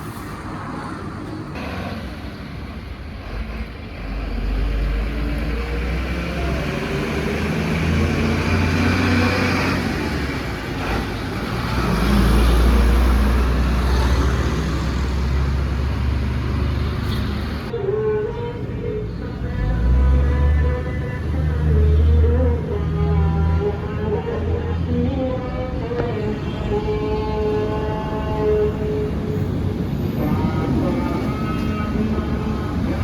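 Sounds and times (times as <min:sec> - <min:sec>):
road noise: 0:00.0 - 0:33.0.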